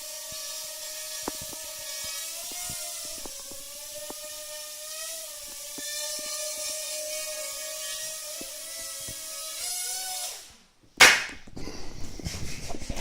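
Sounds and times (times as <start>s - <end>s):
sudden loud knock: 11.0s - 11.4s.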